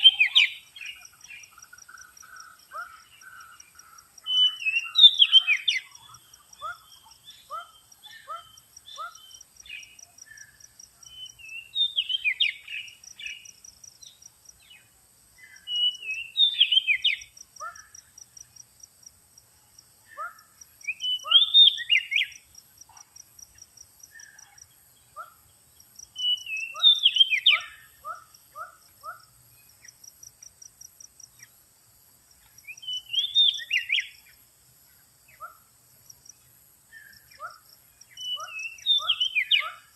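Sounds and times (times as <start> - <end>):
bird singing whistled phrases: 0.0 - 0.7, 4.2 - 6.0, 11.1 - 13.0, 15.5 - 17.2, 20.8 - 22.4, 26.2 - 27.9, 32.8 - 34.2, 38.2 - 39.8.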